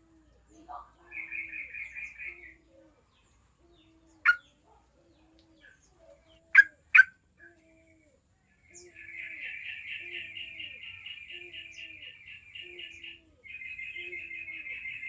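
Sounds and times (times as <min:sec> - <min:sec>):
bird chattering call: 0:04.2 - 0:04.5, 0:06.5 - 0:07.1
bird sharp call notes: 0:04.2 - 0:04.5, 0:06.6 - 0:07.2.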